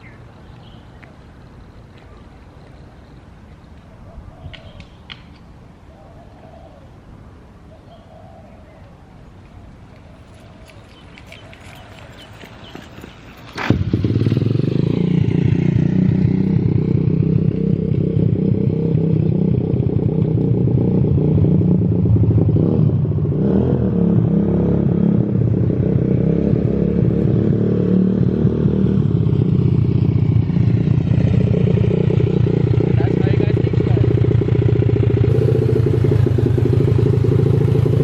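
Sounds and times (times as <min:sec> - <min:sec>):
motorbike engine starting and running: 0:12.0 - 0:38.0.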